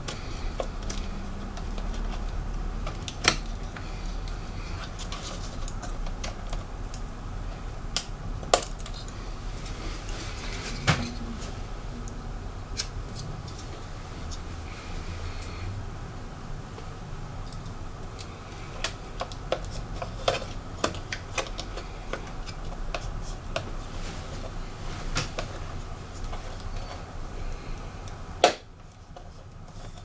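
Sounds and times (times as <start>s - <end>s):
hand tools clicking on laptop parts: 0.0s - 7.1s, 17.4s - 23.7s
steady low hum: 0.0s - 30.0s.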